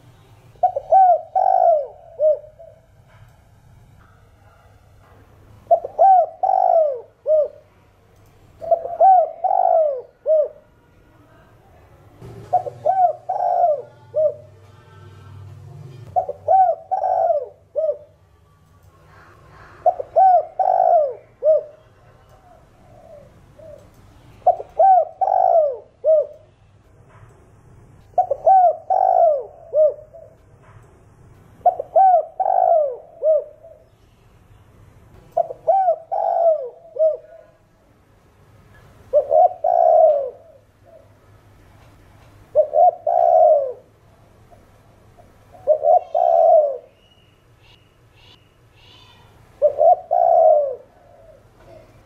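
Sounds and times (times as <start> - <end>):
dove cooing: 0.6 - 2.8, 5.7 - 7.7, 8.6 - 10.7, 12.4 - 15.4, 16.1 - 18.2, 19.1 - 26.4, 28.2 - 30.4, 31.6 - 33.9, 35.4 - 37.7, 39.1 - 41.2, 42.5 - 44.0, 45.2 - 47.0, 49.1 - 52.0.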